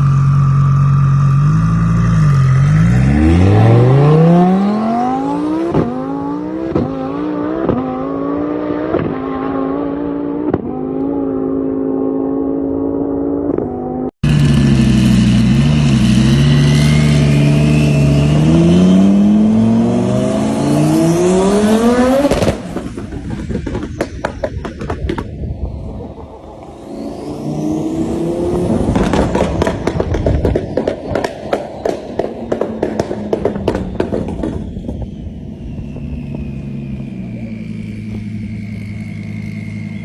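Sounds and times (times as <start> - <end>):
car engine accelerating hard: 0.0 - 25.0, 25.6 - 34.5
exhaust pops and crackles: 22.2 - 25.5, 28.9 - 35.2.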